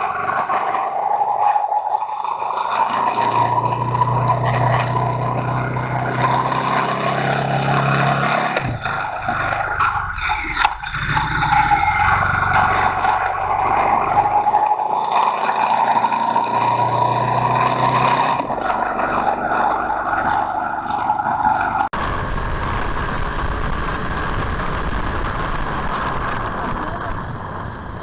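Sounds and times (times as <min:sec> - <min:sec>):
motorcycle engine running: 0:21.6 - 0:28.0
wind noise: 0:21.9 - 0:28.0.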